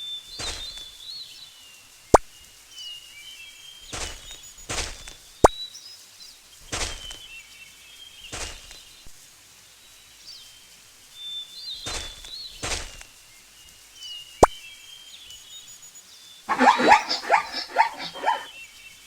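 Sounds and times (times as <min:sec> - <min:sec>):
birds chirping: 0:16.5 - 0:18.6.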